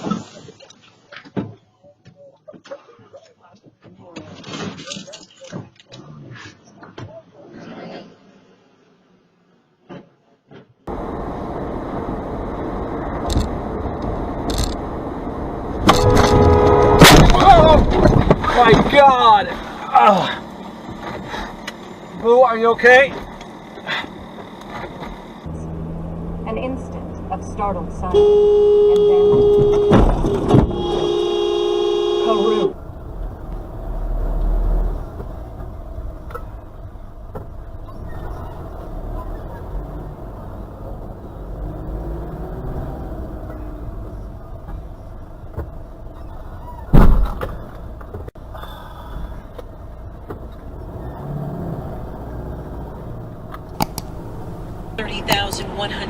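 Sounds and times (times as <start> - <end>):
car road and engine noise: 0.0 - 56.0
car horn held: 15.9 - 17.6, 28.2 - 32.8.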